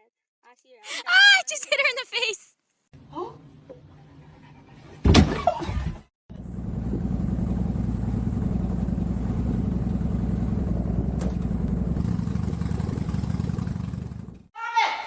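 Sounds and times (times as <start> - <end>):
low pulsing motor: 6.3 - 14.5.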